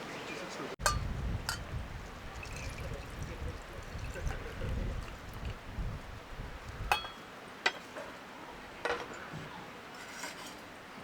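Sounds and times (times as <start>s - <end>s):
tableware clinking: 6.9s - 7.9s, 8.8s - 9.3s.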